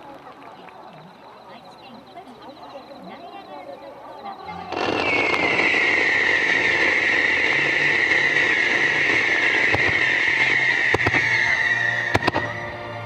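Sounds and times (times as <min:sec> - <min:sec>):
firework whistling hiss: 0:04.6 - 0:13.0
firework pops: 0:04.7 - 0:12.8.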